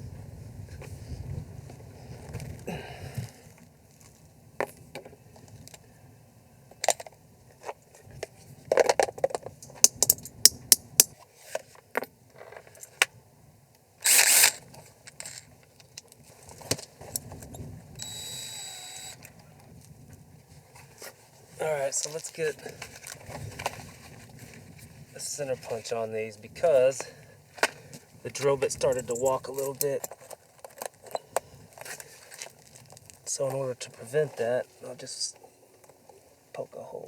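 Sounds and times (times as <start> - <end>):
loud rasping burst: 14.1 - 14.6, 18.0 - 19.2
short steady whir: 18.0 - 19.3.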